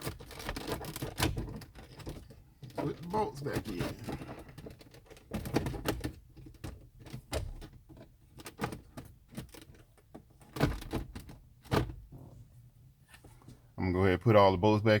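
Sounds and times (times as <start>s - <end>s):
clicks and knocks of hand work: 0.0s - 12.0s.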